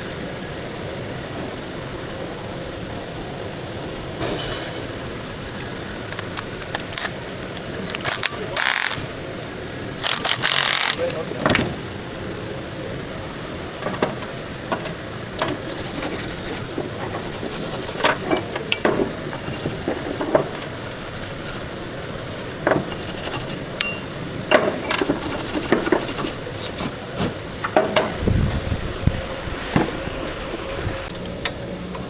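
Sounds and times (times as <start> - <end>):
hand tools rasping on metal: 15.6 - 23.9, 24.8 - 27.4.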